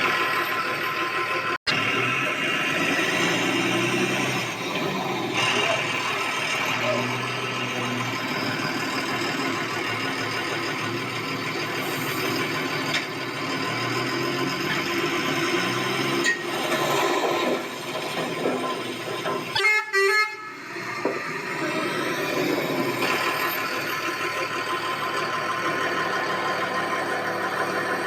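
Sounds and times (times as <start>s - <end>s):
toy electronic horn honking: 19.5s - 21.0s.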